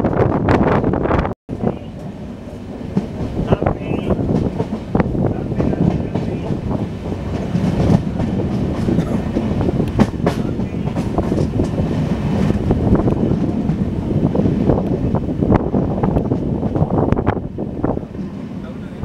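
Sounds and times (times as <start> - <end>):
train wheels rumbling on rails: 0.0 - 19.0
track clicks and knocks: 2.9 - 13.9.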